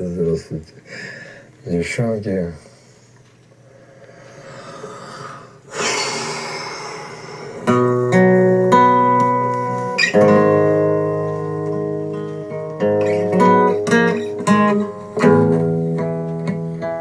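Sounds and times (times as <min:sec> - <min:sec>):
acoustic guitar chords strummed: 0:07.6 - 0:17.0.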